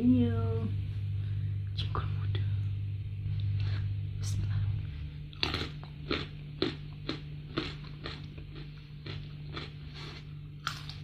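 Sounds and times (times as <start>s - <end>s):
crunchy chewing: 5.3s - 11.0s
crunchy bite: 5.4s - 10.3s.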